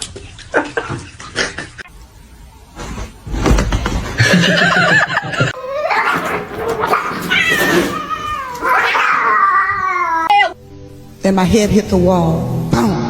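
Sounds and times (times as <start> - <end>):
cat yowling: 5.6 - 10.6.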